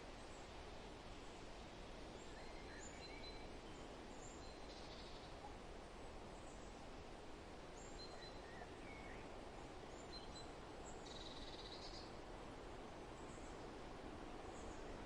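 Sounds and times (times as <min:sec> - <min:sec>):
wind rustling through trees: 0:00.0 - 0:15.0
faint songbird chirps: 0:02.1 - 0:06.8, 0:07.7 - 0:12.2, 0:13.1 - 0:15.0.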